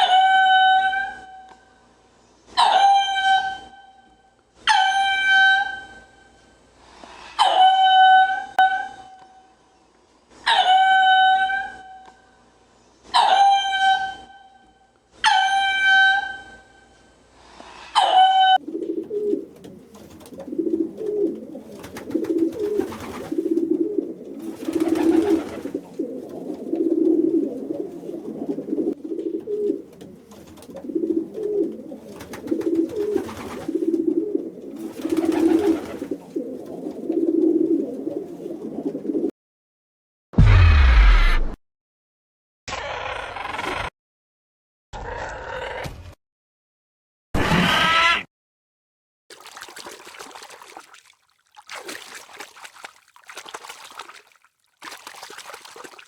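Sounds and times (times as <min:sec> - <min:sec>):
pigeons cooing: 0:18.6 - 0:39.3.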